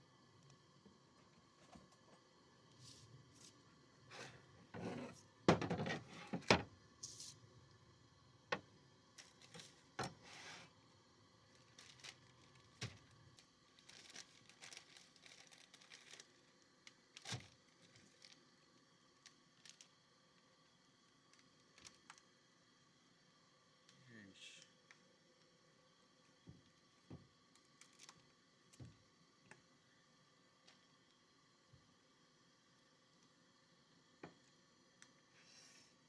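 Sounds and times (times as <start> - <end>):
rustling and crinkling: 9.2 - 10.4, 11.5 - 18.4, 27.6 - 28.3.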